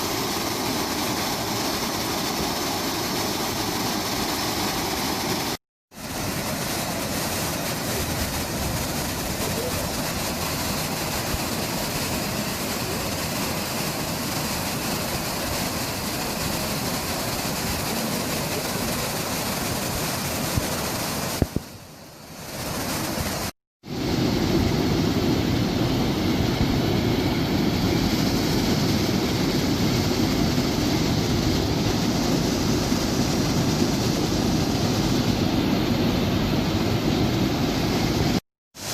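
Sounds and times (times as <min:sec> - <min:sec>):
waterfall rushing water: 0:00.0 - 0:23.5.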